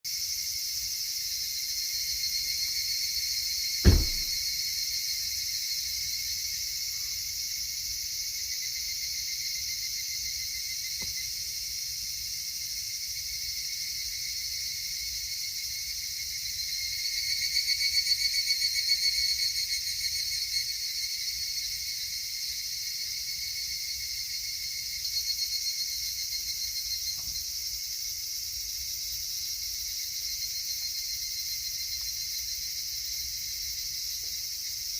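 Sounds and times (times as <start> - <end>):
insects chirping: 0.1 - 34.9
sharp knock: 3.8 - 4.4.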